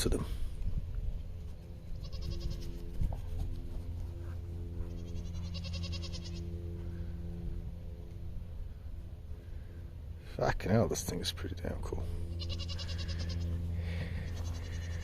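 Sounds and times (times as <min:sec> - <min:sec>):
steady low hum: 0:00.0 - 0:15.0
goats bleating: 0:02.0 - 0:02.7, 0:05.2 - 0:06.4, 0:12.4 - 0:13.4, 0:14.3 - 0:15.0.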